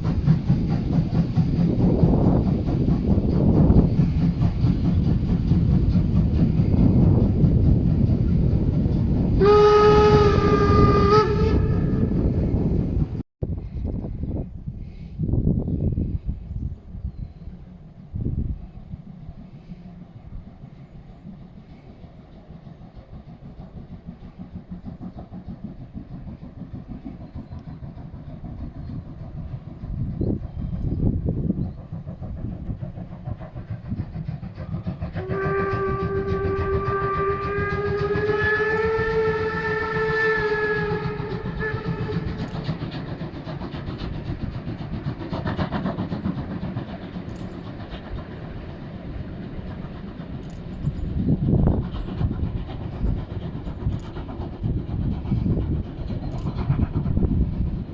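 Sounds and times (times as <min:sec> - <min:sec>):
steam locomotive exhaust beating: 0:00.0 - 0:57.9
steam whistle blast: 0:09.4 - 0:12.2, 0:35.2 - 0:42.4.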